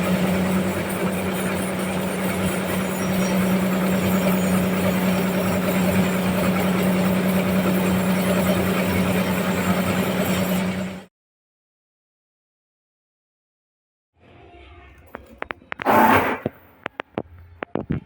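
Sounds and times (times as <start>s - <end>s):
sawmill machinery running: 0.0s - 11.1s.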